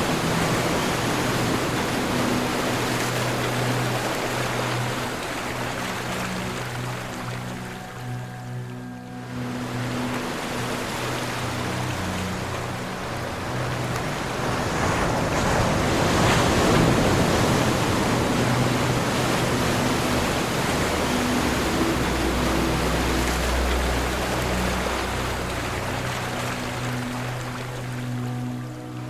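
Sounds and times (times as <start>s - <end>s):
low steady tones: 0.0s - 29.0s
ocean surf washing in: 0.0s - 29.0s.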